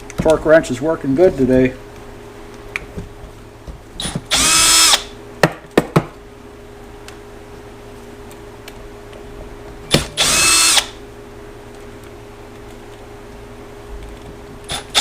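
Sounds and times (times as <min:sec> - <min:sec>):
power drill motor spinning: 0:04.0 - 0:05.2, 0:09.9 - 0:11.0, 0:14.6 - 0:15.0.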